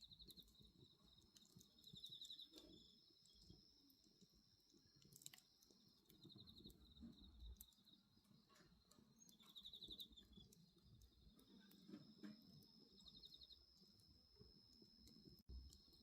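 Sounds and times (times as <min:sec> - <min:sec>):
bonfire crackling and popping: 0:00.0 - 0:16.0
insects trilling: 0:00.0 - 0:16.0
pulsed insect chirp: 0:09.1 - 0:16.0.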